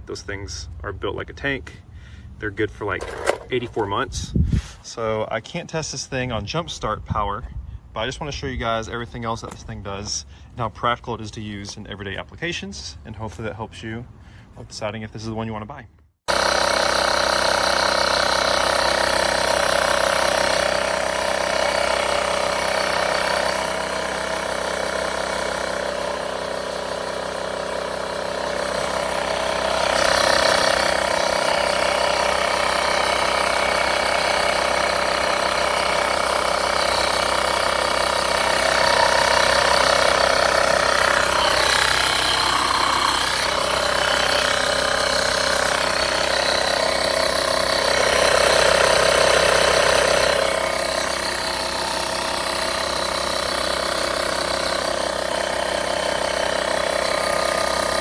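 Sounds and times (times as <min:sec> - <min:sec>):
air compressor pump humming: 0:02.9 - 0:04.8, 0:16.3 - 0:58.0.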